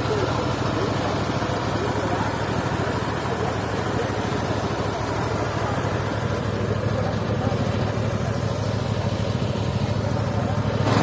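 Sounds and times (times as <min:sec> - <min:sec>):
sawmill engine running: 0:00.0 - 0:11.0.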